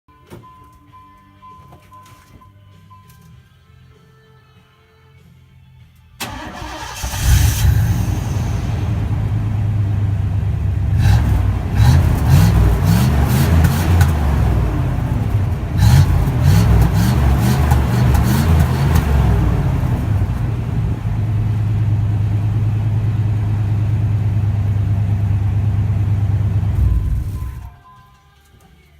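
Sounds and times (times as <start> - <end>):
car engine revving: 6.2 - 27.7
sharp exhaust cracks: 6.2 - 27.7.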